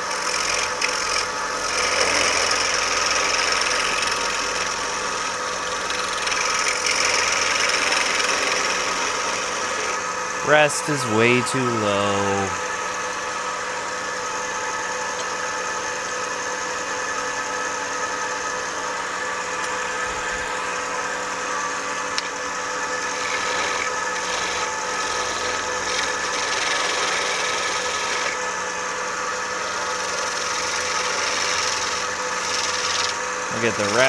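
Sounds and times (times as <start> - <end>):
lathe running: 0.1 - 10.5, 22.8 - 28.4, 29.5 - 34.0
turning tool scraping wood: 0.2 - 4.7, 5.8 - 9.8, 23.2 - 28.3, 30.1 - 33.2.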